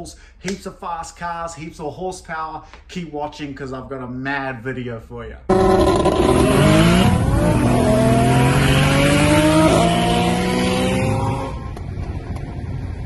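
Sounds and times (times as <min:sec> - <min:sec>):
car engine accelerating hard: 0:05.5 - 0:13.0.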